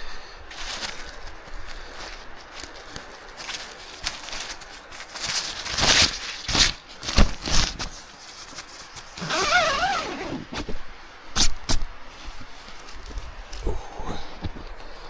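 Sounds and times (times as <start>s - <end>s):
background hiss: 0.0s - 15.0s
rustling handling noise: 0.0s - 15.0s.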